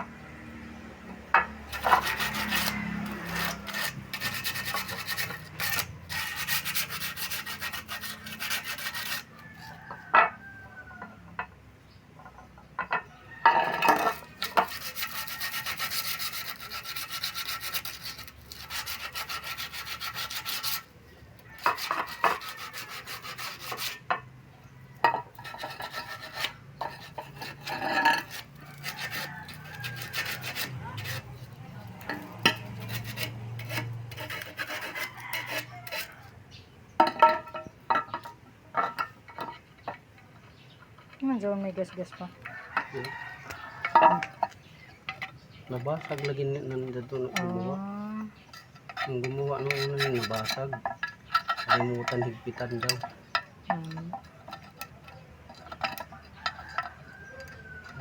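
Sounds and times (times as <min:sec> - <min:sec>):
rough scraping on hard surface: 0:00.0 - 0:11.2, 0:12.2 - 0:58.0.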